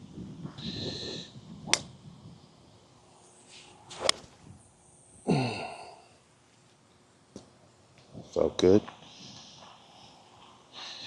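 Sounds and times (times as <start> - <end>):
golf club swish: 3.3 - 4.6
person exhaling: 5.2 - 6.2.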